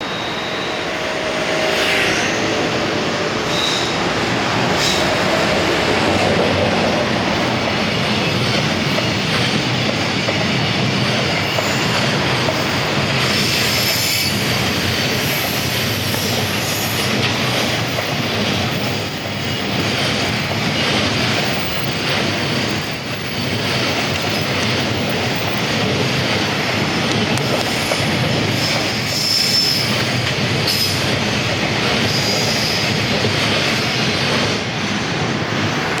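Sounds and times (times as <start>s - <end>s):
wheel squeals: 0.0s - 2.7s, 3.5s - 4.1s, 27.6s - 31.0s
train wheels rumbling on rails: 0.0s - 36.0s.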